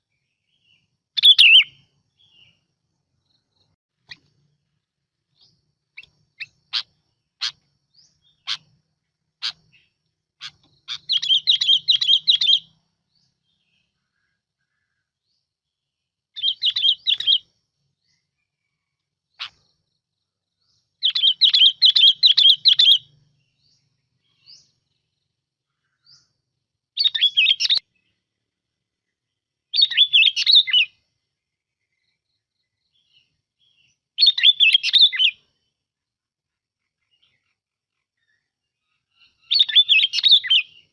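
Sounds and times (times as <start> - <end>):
bulbul warbling song: 1.2 - 2.5, 9.4 - 12.8.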